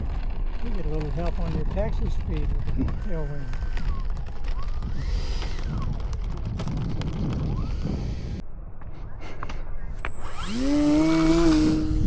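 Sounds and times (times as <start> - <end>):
wind buffeting microphone: 0.0 - 12.0
model plane electric motor whine: 2.4 - 8.4, 10.0 - 12.0.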